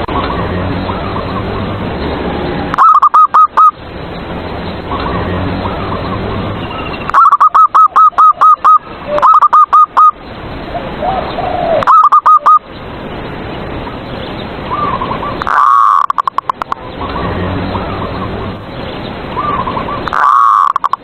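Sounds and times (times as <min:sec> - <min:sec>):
doves cooing: 0:02.4 - 0:03.8, 0:04.8 - 0:12.6, 0:14.7 - 0:18.5, 0:19.4 - 0:21.0.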